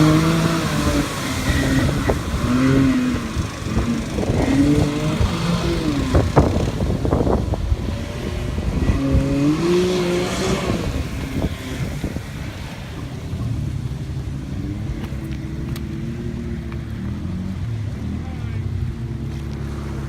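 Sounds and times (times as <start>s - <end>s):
off-road vehicle engine revving: 0.0s - 20.0s.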